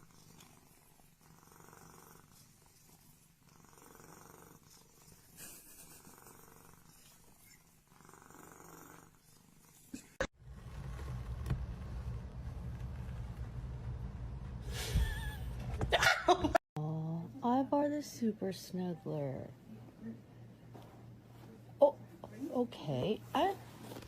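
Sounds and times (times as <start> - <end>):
cat purring: 0.0 - 15.9
low rumble: 10.4 - 16.6.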